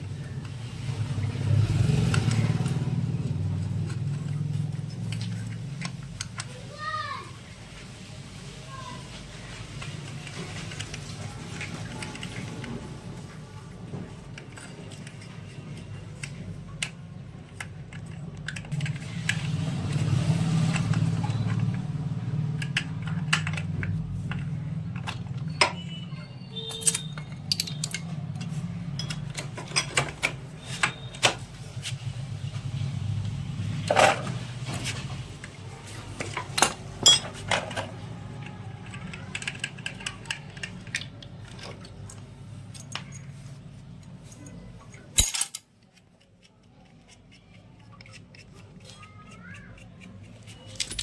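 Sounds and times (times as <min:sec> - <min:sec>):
metal tools clinking and knocking: 0:22.6 - 0:31.4, 0:33.8 - 0:34.9, 0:36.1 - 0:45.9, 0:50.6 - 0:51.0.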